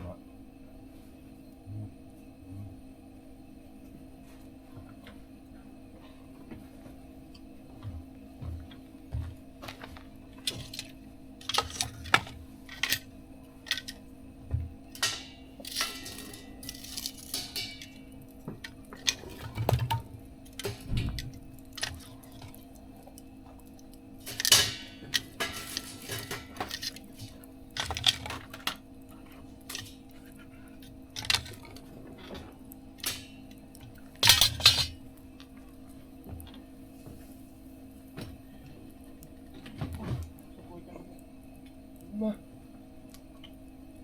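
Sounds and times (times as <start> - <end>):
metal utensils clinking on grill: 9.6 - 14.1, 14.8 - 35.1.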